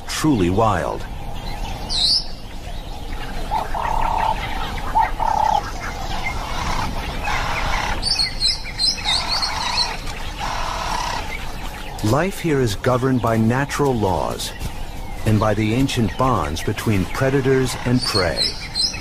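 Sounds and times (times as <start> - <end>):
outdoor background noise: 0.0 - 19.0
wild birds whistling and chirping: 0.0 - 19.0.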